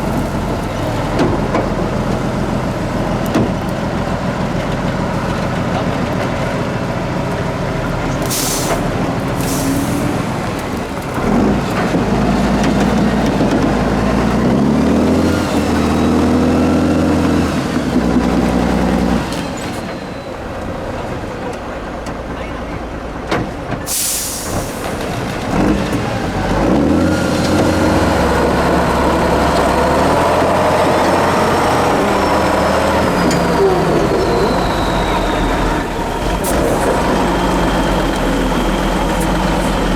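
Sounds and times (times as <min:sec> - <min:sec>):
diesel truck engine revving: 0:00.0 - 0:19.8, 0:23.9 - 0:39.9
air brake hisses: 0:08.2 - 0:10.2, 0:23.9 - 0:25.0.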